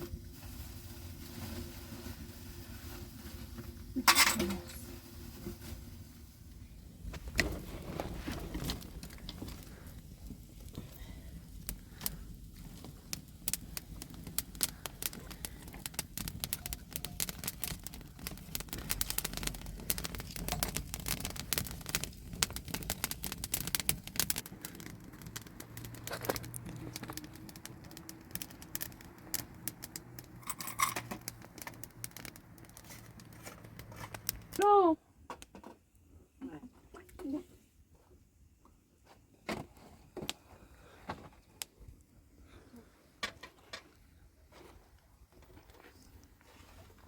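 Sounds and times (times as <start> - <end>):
sharp clicks and crackles: 7.2 - 34.6.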